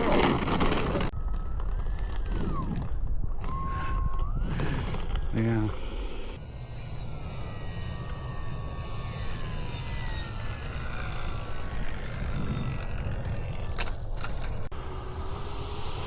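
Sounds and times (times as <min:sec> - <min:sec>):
wind buffeting microphone: 0:00.0 - 0:06.4, 0:08.9 - 0:14.7
electric fan spooling up: 0:00.0 - 0:16.0
faint falling whines: 0:00.0 - 0:16.0.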